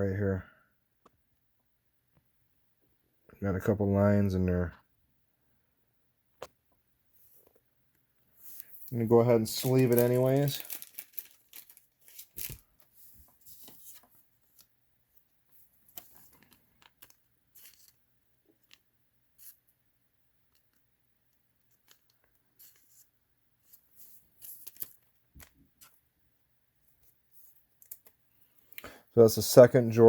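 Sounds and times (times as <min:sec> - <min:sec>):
card rustling into sleeve: 0:08.4 - 0:14.7, 0:15.5 - 0:18.0, 0:19.4 - 0:19.7, 0:21.7 - 0:26.0, 0:27.0 - 0:28.8.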